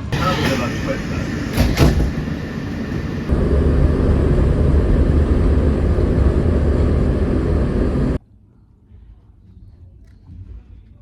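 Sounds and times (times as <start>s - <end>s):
loud steady rumble with hiss: 0.0s - 8.2s.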